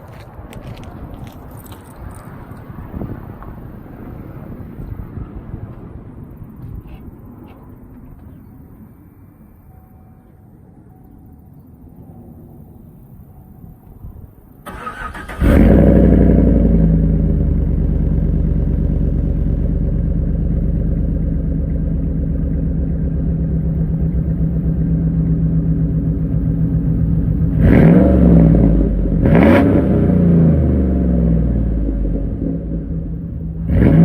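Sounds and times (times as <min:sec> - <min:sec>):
truck engine starting and idling: 0:14.2 - 0:34.0
engine revving: 0:14.7 - 0:34.0.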